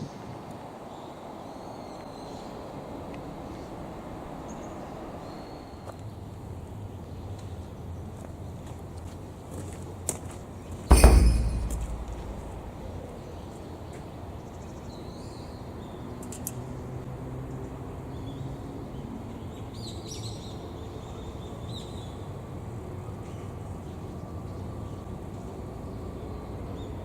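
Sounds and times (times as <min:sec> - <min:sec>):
outdoor background noise: 0:00.0 - 0:27.0
loud thump: 0:10.9 - 0:13.0.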